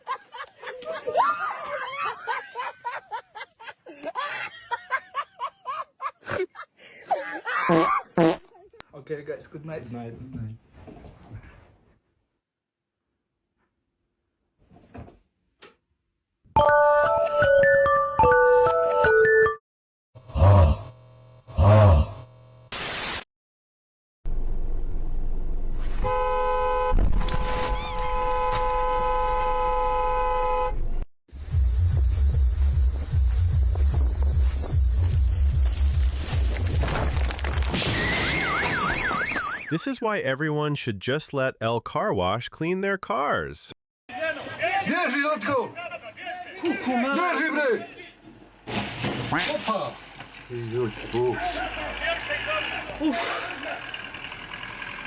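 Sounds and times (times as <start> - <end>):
person laughing: 0.0 - 8.8, 52.9 - 53.8
vehicle horn blast: 26.0 - 27.0, 28.0 - 30.8
rumbling vehicle noise: 48.5 - 55.0.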